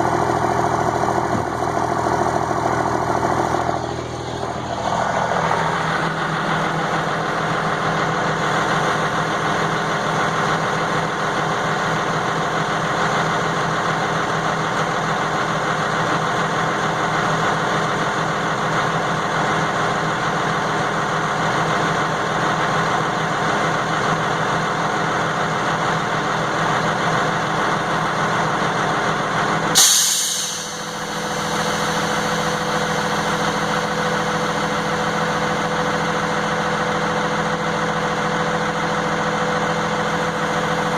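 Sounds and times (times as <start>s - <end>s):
diesel engine idling: 0.0s - 40.9s
sharp hiss of air: 29.8s - 32.6s.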